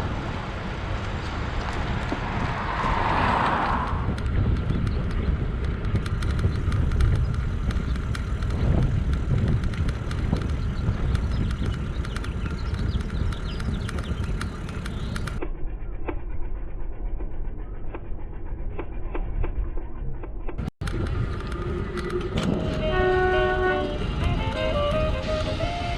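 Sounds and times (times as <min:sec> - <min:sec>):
tyres rumbling: 0:00.0 - 0:15.4, 0:20.5 - 0:25.9
wind on microphone: 0:00.0 - 0:15.4, 0:20.9 - 0:25.9
small clicks and rattles: 0:04.1 - 0:15.4.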